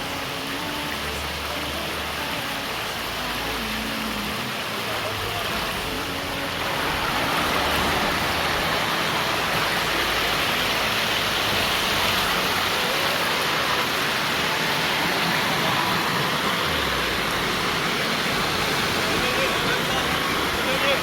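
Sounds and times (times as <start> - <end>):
waterfall rushing over rocks: 0.0 - 21.0.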